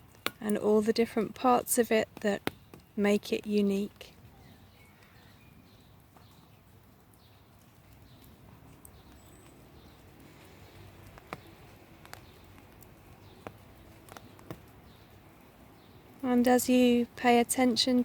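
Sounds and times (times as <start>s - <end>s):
faint bird chirps: 4.2s - 6.6s.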